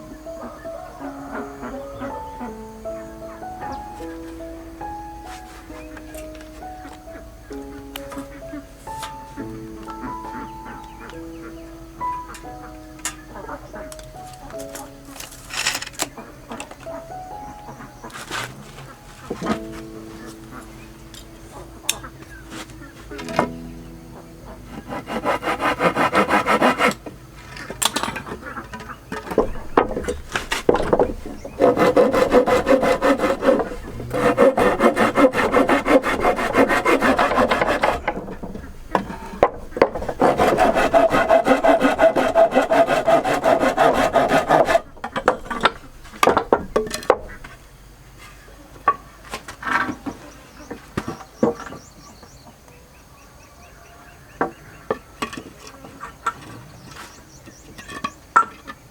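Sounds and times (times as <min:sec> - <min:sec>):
tool rasping wood: 0:24.7 - 0:27.0, 0:29.4 - 0:47.4
scattered knocks: 0:28.0 - 0:47.6.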